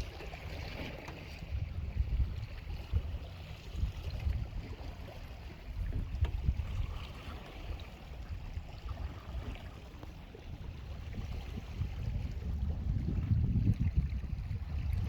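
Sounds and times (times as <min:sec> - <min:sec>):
wind buffeting microphone: 0:01.2 - 0:15.0.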